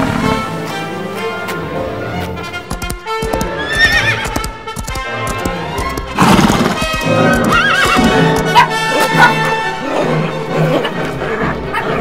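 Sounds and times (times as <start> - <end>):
background music: 0.0 - 12.0
hooves clip-clopping: 1.2 - 9.5
horse whinnying: 3.4 - 4.5, 6.2 - 12.0.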